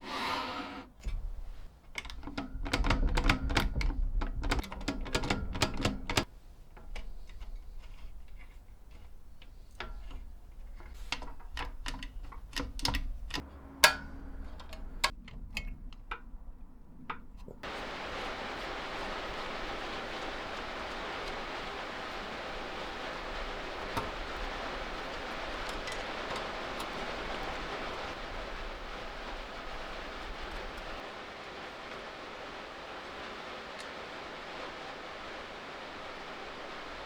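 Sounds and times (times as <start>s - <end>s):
calculator mechanism clicking: 1.9s - 8.4s.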